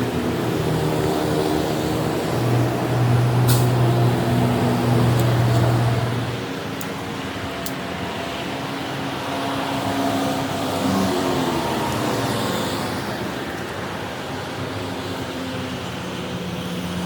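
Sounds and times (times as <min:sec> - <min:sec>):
diesel engine running: 0:00.0 - 0:07.6.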